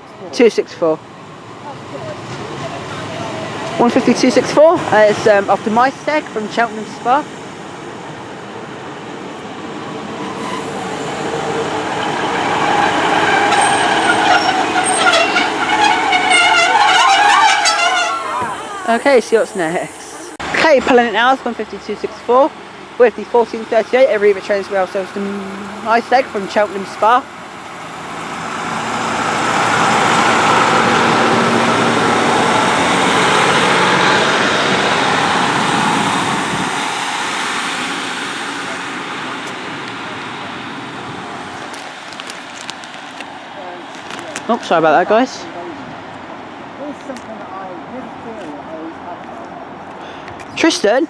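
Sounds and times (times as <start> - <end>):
train engine and wheel noise: 0.0 - 51.0
high-pitched squeals: 10.2 - 20.5.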